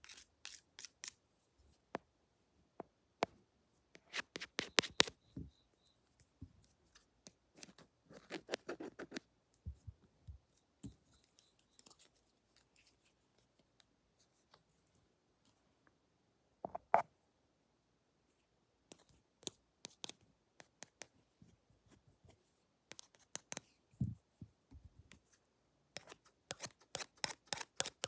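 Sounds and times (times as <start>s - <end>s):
light clicks and scratches: 6.1s - 15.6s.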